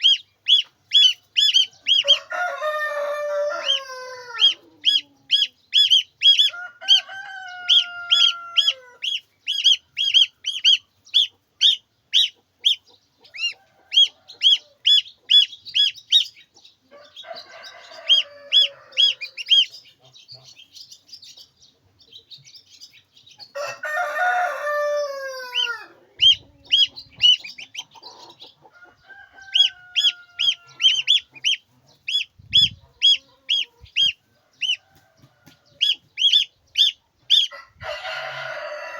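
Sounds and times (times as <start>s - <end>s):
chicks peeping: 0.0s - 38.9s
rooster crowing: 1.6s - 5.0s, 6.4s - 9.1s, 13.5s - 14.8s, 16.9s - 19.6s, 23.5s - 26.4s, 28.7s - 31.3s, 37.4s - 38.9s.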